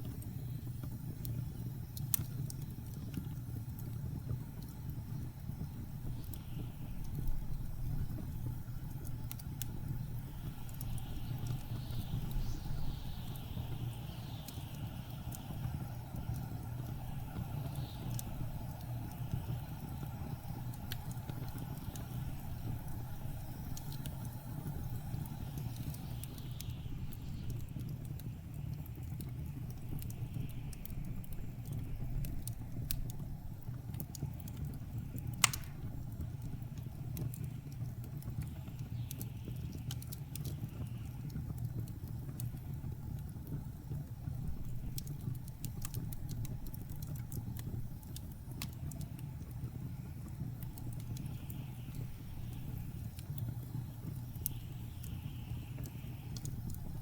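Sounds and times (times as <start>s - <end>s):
blizzard wind low rumble: 0.0s - 38.0s
wood fire crackling: 0.0s - 57.0s.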